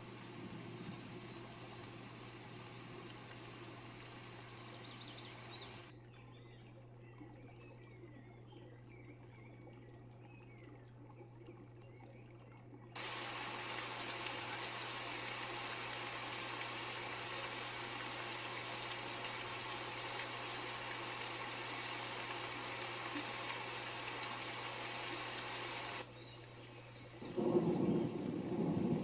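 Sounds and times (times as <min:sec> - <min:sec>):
heavy rain: 0:00.0 - 0:05.9, 0:13.0 - 0:26.0, 0:27.2 - 0:29.0.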